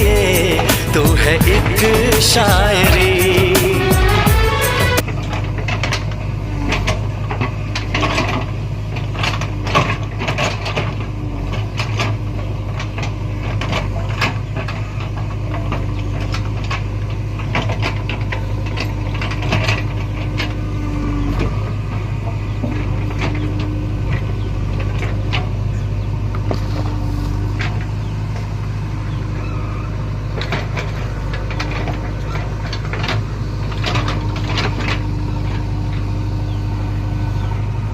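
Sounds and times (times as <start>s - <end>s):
machine humming: 0.0s - 5.1s, 17.4s - 37.9s.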